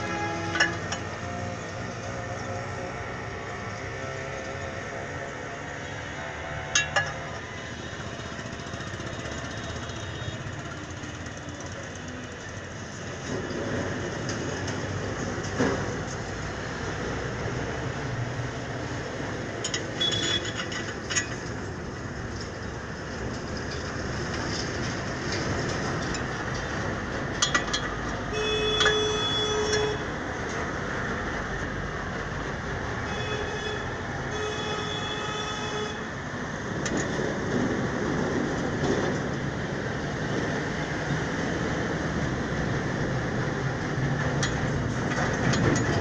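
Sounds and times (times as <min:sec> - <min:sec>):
short pitched horn tones: 0:00.0 - 0:00.8, 0:28.3 - 0:30.1
vehicle rumble: 0:00.0 - 0:46.0.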